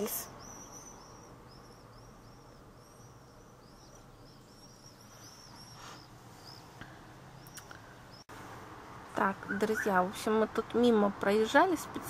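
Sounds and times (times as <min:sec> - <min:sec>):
bird chirping: 0:00.0 - 0:08.3, 0:09.2 - 0:11.2
rustle: 0:04.9 - 0:10.1.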